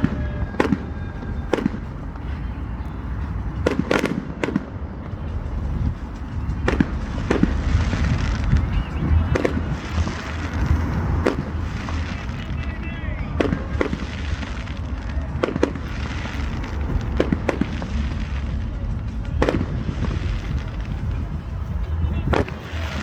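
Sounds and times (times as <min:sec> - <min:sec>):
fireworks crackling: 0:00.0 - 0:23.0
firework shells bursting: 0:03.2 - 0:23.0.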